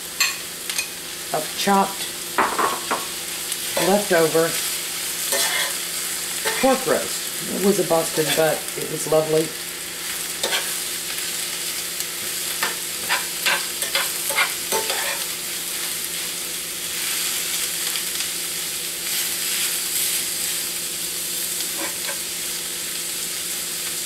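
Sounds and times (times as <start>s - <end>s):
meat and cabbage sizzling in skillet: 0.0s - 24.0s
metal spoon scraping a pan: 5.3s - 5.8s, 6.4s - 6.8s, 8.2s - 9.3s, 10.4s - 10.8s, 12.6s - 15.3s, 21.7s - 22.2s.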